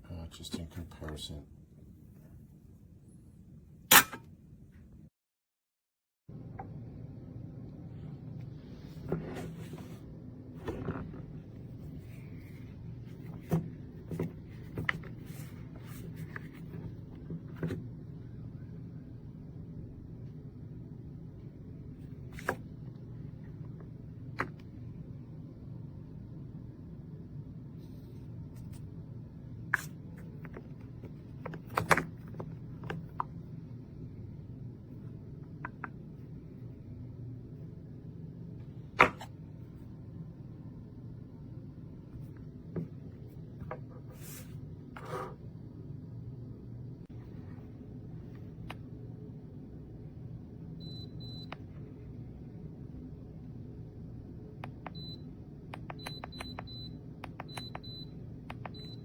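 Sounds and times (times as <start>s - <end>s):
steady low hum: 6.3s - 59.0s.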